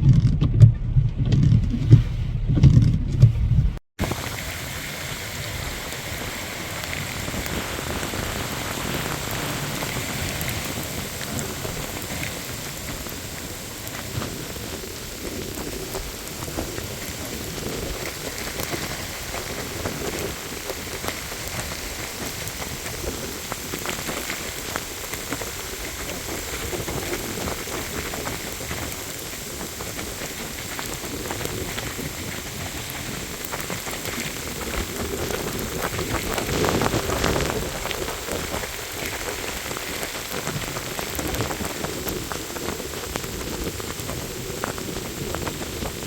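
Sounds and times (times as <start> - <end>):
heavy rain falling: 4.0 - 46.0
raindrops pattering on a surface: 4.0 - 46.0.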